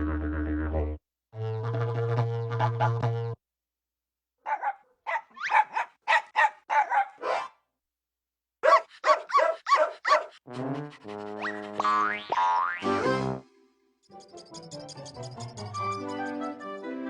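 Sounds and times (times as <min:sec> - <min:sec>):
dog barking in high yaps: 0:04.4 - 0:07.6, 0:08.6 - 0:10.4.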